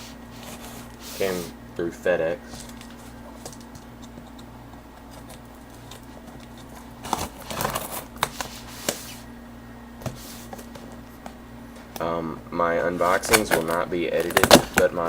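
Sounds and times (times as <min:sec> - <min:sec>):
desktop computer humming: 0:00.0 - 0:15.0
packaging rustling: 0:02.5 - 0:04.2, 0:05.0 - 0:09.3, 0:13.0 - 0:15.0.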